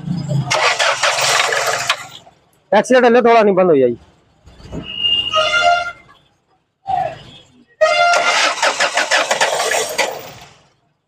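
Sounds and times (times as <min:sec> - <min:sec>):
car engine cranking on starter: 0:00.4 - 0:02.2, 0:08.1 - 0:10.6.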